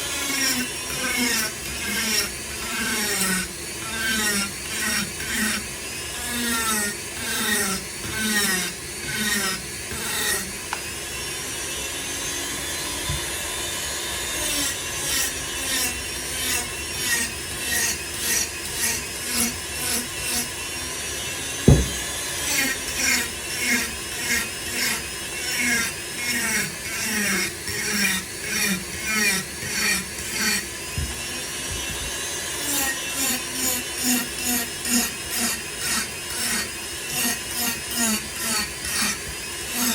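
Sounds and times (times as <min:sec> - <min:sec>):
motor whine: 0:00.0 - 0:37.4
rotary tool grinding wood: 0:00.0 - 0:39.9
sharp knock: 0:21.7 - 0:22.0.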